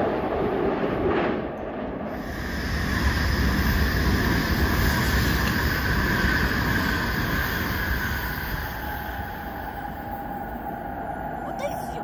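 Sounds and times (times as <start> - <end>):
high-speed train passing: 0.0 - 12.0.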